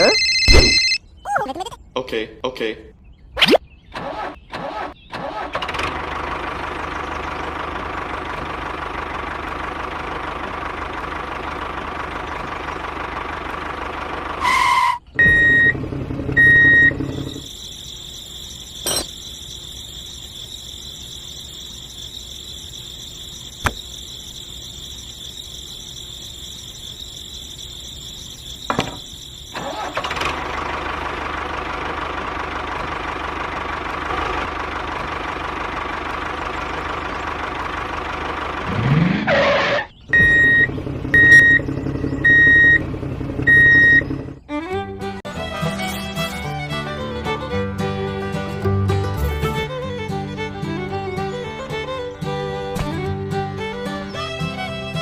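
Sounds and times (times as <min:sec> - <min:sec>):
short high beeps: 0:00.0 - 0:01.0.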